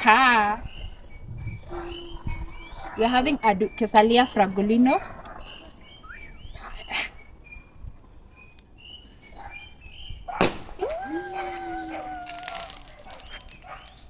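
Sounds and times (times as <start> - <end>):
faint birds chirping: 0.0 - 14.0
dog howling: 10.7 - 14.0
cork popping from bottle: 12.1 - 14.0.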